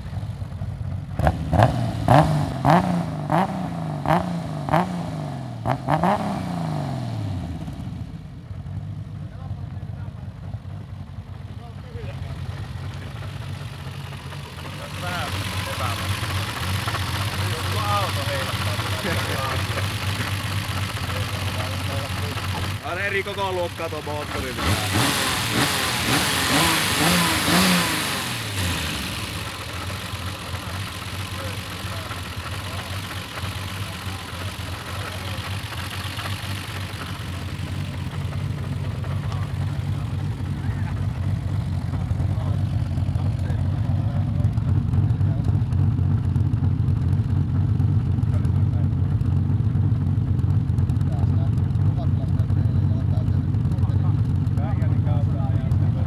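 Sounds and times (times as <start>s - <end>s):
car engine revving: 1.1s - 8.0s, 12.0s - 45.4s.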